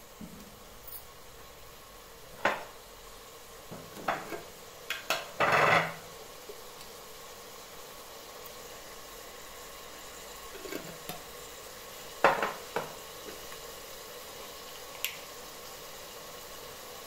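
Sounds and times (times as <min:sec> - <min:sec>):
sauce sizzling in a pot: 0:00.0 - 0:17.0
utensils clinking against a pot: 0:04.0 - 0:06.0.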